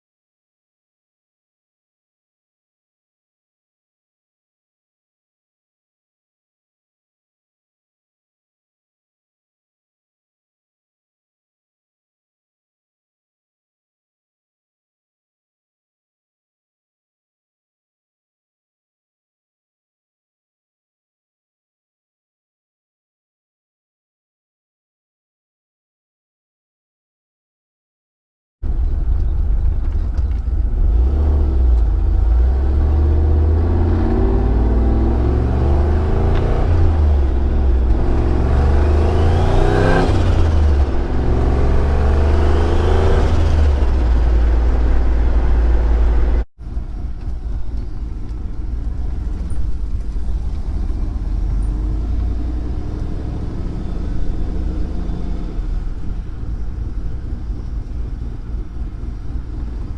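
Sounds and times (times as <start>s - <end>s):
car engine rumbling: 28.6s - 59.9s
quieter engine rumble: 28.6s - 59.9s.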